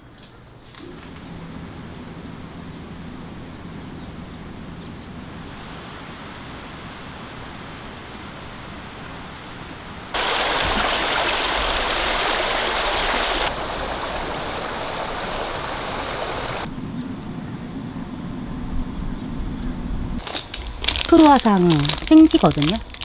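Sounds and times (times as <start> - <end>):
steady rushing noise: 10.2 - 16.7.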